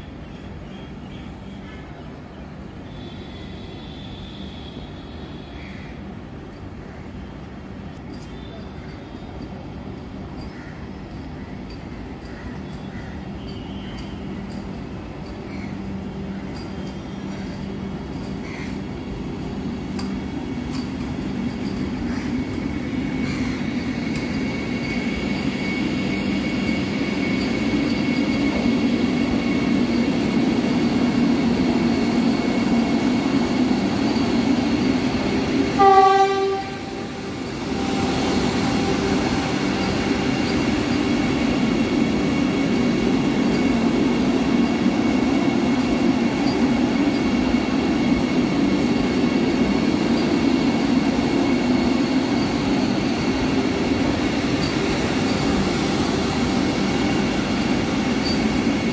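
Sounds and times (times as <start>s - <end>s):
electric train rumbling past: 0.0s - 58.9s
short train horn blast: 2.8s - 5.9s, 35.7s - 40.4s.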